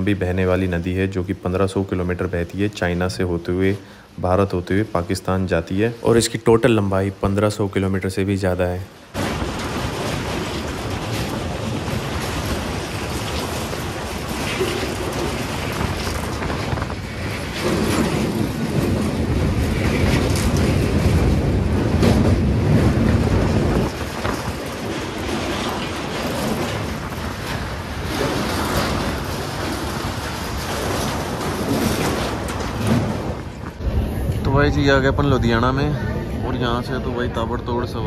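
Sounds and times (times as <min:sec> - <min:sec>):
train wheels on rails: 0:09.0 - 0:38.0.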